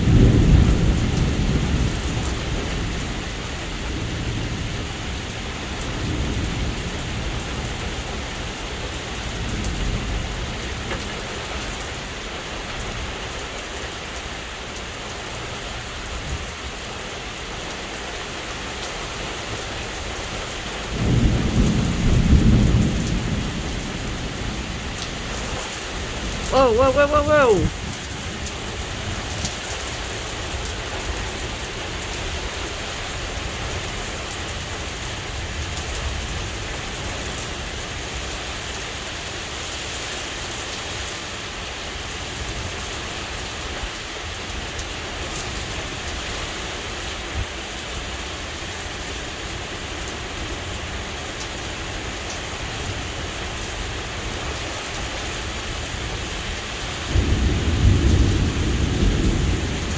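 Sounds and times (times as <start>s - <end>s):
rain falling: 0.0s - 59.9s
thunder rumbling: 57.1s - 59.9s.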